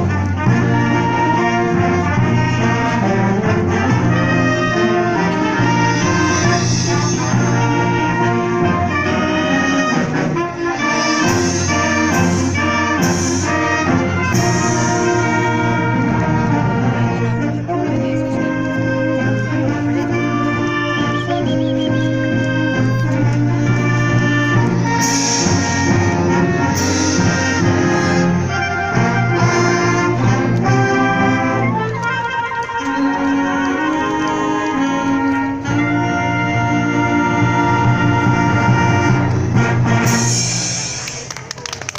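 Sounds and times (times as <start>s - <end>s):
symphonic wind band playing: 0.0s - 41.4s
brass section: 0.0s - 41.9s.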